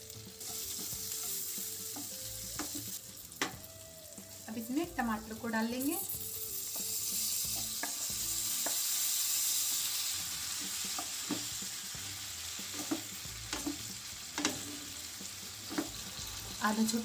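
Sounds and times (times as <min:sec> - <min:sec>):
tomatoes sizzling in hot oil: 0:00.0 - 0:17.0
wooden spatula knocking a pan: 0:10.9 - 0:11.6, 0:12.7 - 0:14.6.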